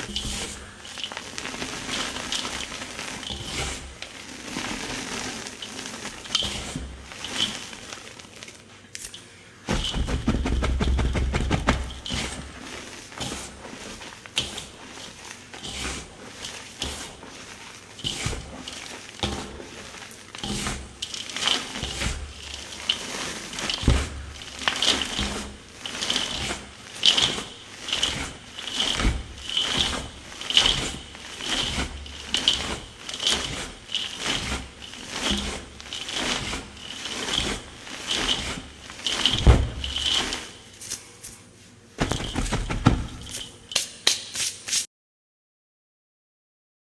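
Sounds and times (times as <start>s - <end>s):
chalk crushed by hand: 9.7s - 41.4s, 42.0s - 44.9s.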